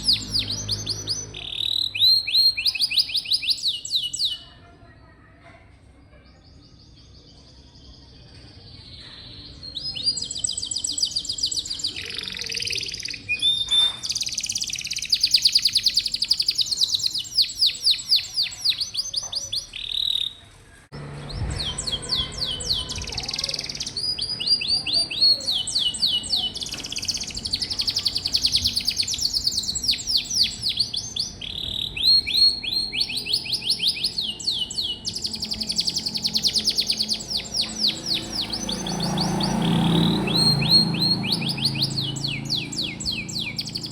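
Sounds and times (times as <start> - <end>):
canary singing trills: 0.0 - 4.6, 6.2 - 43.9.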